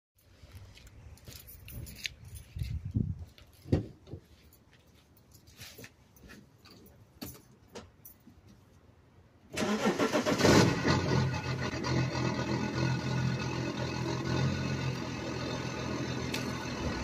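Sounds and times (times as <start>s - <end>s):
diesel engine starting rough: 9.5s - 17.0s.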